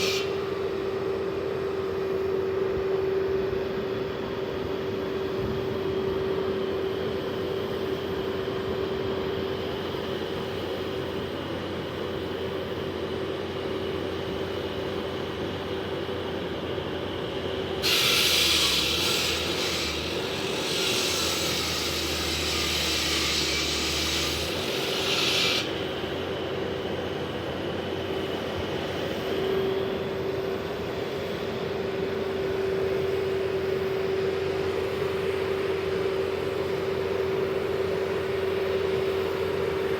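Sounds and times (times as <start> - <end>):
saw grinding asphalt: 0.0 - 0.4, 17.7 - 26.4
concrete saw whining: 0.0 - 1.1, 17.2 - 27.7.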